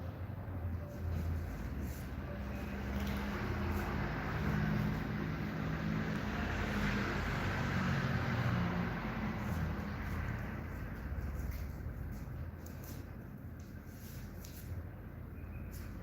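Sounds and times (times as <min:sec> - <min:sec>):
mechanical hum and rumble: 0:00.0 - 0:16.0.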